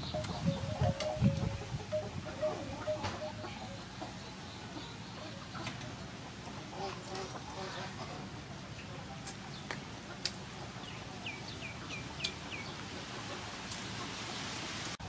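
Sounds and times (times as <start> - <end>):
bird chirping: 0.0 - 5.7
outdoor background noise: 0.0 - 15.0.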